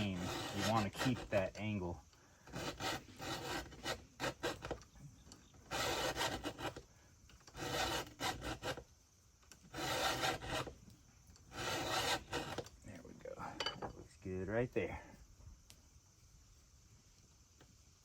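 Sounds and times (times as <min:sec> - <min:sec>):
file sharpening chainsaw chain: 0:00.0 - 0:01.8, 0:02.5 - 0:04.8, 0:05.7 - 0:06.8, 0:07.4 - 0:08.8, 0:09.7 - 0:10.7, 0:11.5 - 0:12.7.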